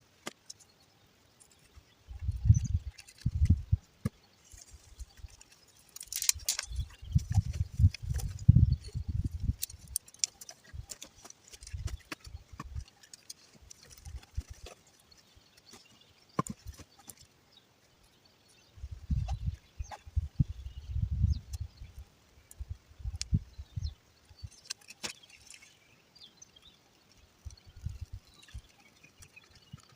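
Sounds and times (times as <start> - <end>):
kindling crackling: 1.4 - 17.2.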